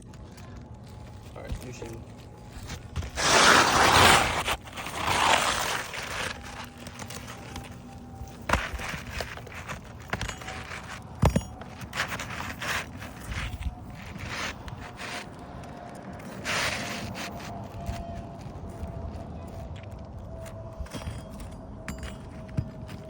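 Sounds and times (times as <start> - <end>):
rustling: 0.1 - 18.5
shingle scraping across roof: 0.8 - 18.6.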